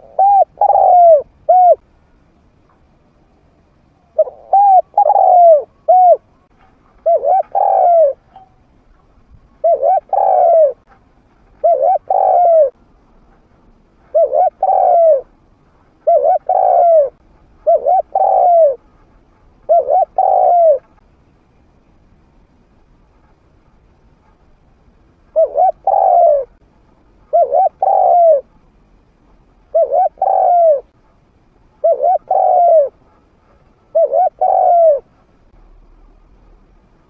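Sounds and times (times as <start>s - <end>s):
dove cooing: 0.0s - 1.8s, 4.0s - 6.4s, 7.0s - 8.5s, 9.6s - 10.8s, 11.6s - 12.8s, 14.0s - 15.3s, 16.0s - 18.8s, 19.6s - 21.0s, 25.3s - 26.6s, 27.2s - 28.5s, 29.7s - 31.0s, 31.8s - 35.1s.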